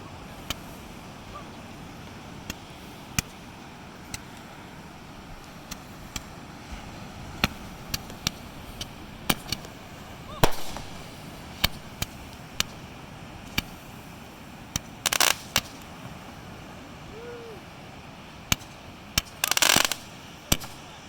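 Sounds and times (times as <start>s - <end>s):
crackling fireworks: 0.0s - 21.0s
fireworks bangs: 7.4s - 13.8s, 14.7s - 15.8s, 18.5s - 21.0s.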